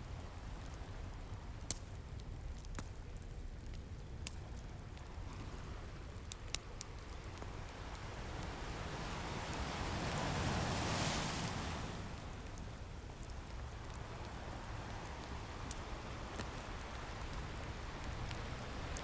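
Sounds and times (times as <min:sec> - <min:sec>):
wood fire crackling and popping: 0:00.0 - 0:19.0
ocean surf rumbling: 0:07.1 - 0:19.0
ocean wave washing in: 0:07.8 - 0:13.4.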